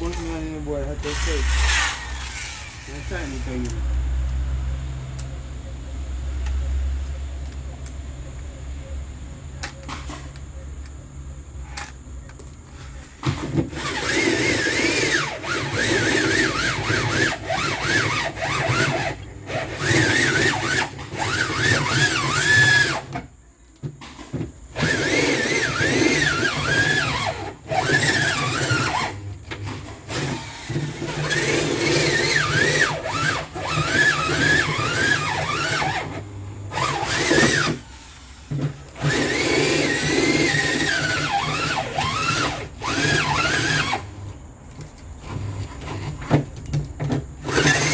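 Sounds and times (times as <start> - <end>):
electric drill squealing into metal: 0.0 - 3.8, 13.3 - 23.3, 24.8 - 44.1, 47.4 - 47.9.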